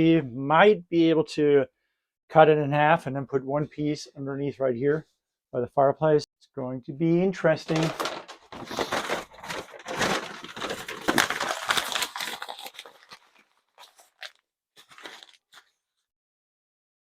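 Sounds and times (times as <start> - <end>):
stiff mat crinkling and rustling: 7.7 - 15.8.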